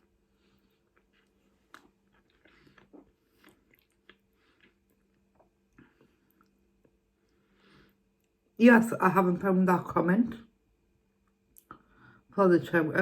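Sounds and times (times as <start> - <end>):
person chewing: 0.0 - 7.4
faint steady hum: 0.0 - 13.0.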